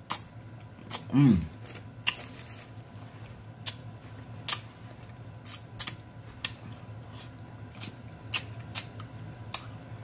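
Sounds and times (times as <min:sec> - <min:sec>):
wet chewing and lip-smacking: 0:04.4 - 0:09.8.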